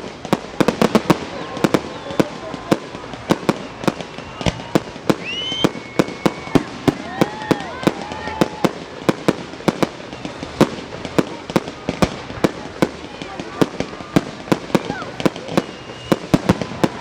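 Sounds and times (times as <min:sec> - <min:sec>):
fireworks bangs: 0:00.0 - 0:17.0
faint gliding whistles: 0:01.4 - 0:06.7, 0:15.4 - 0:17.0.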